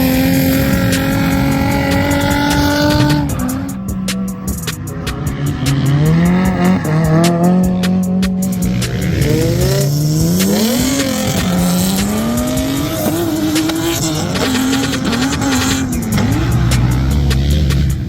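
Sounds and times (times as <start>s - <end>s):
car engine revving: 0.0s - 18.0s
tires squealing: 0.0s - 18.0s.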